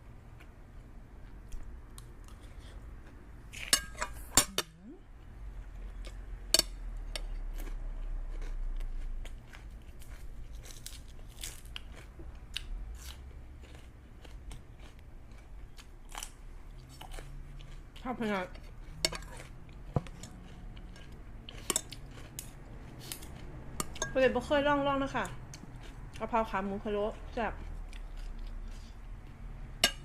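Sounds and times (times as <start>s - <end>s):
chewing: 0.4s - 3.8s, 4.4s - 24.2s, 25.1s - 26.3s, 27.2s - 30.0s
utensils clinking on a dish: 3.6s - 4.7s.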